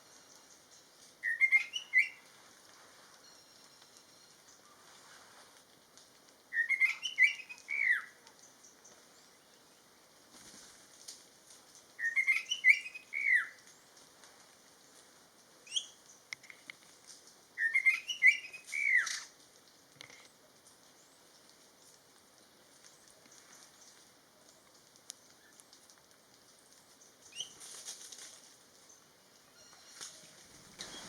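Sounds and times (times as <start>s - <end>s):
songbird whistling phrase: 1.2s - 2.2s, 6.6s - 8.1s, 12.0s - 13.5s.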